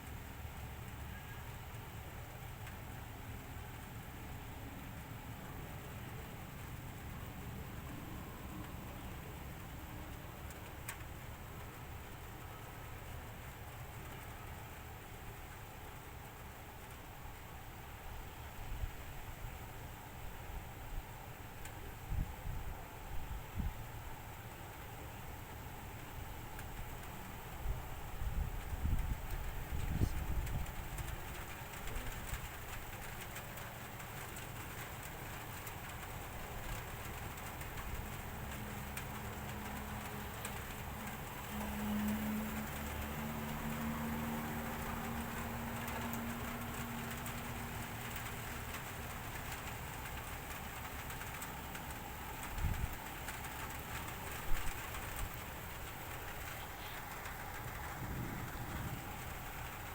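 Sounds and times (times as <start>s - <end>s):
steady outdoor hiss: 0.0s - 59.9s
distant thunder rumble: 25.1s - 59.9s.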